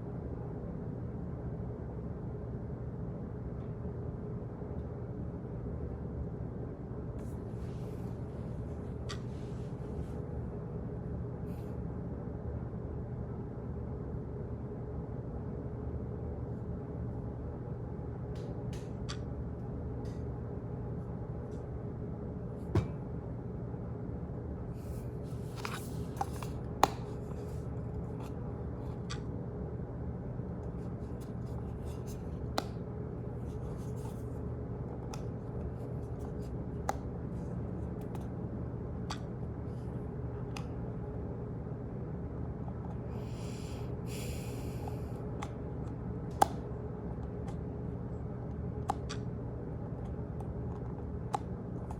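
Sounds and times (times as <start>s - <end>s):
low hum of room noise: 0.0s - 51.9s.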